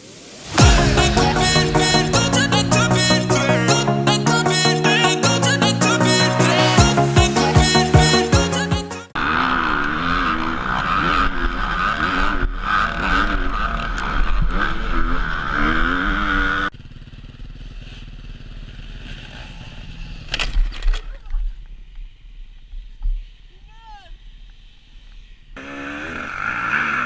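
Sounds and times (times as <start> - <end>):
motocross bike engines revving: 9.2 - 20.4, 25.3 - 27.0.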